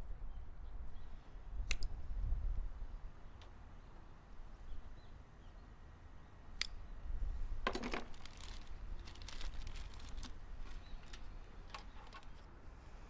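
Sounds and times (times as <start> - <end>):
hands handling wiring and parts: 7.6 - 12.6.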